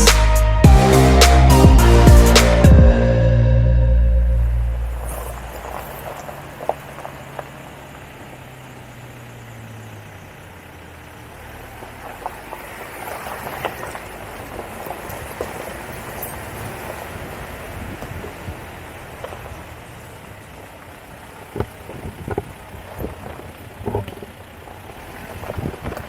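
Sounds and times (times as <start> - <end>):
steady low tones: 0.0 - 5.7
vehicle running: 0.0 - 26.0.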